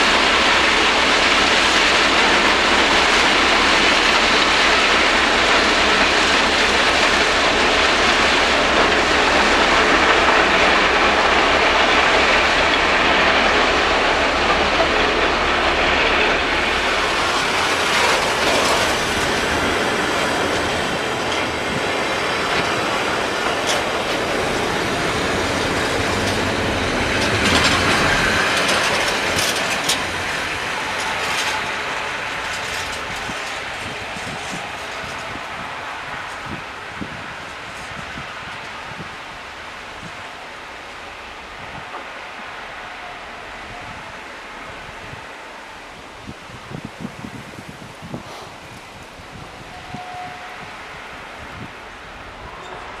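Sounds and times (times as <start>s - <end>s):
wagon wheels clacking over rail joints: 0.0s - 35.6s
diesel locomotive drone: 0.0s - 53.0s.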